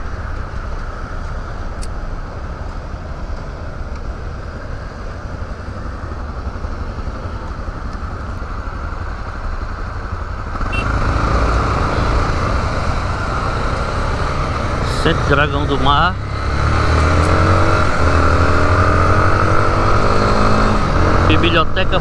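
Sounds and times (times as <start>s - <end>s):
motorcycle engine idling: 2.0s - 10.8s
motorcycle pulling away: 10.5s - 22.0s.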